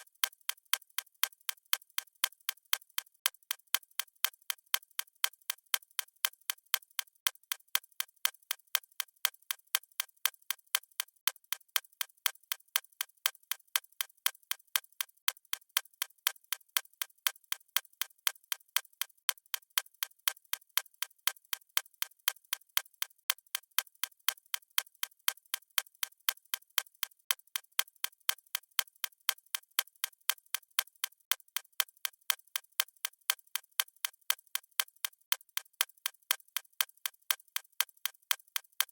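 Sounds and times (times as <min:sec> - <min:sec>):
clock ticking: 0:28.3 - 0:38.9.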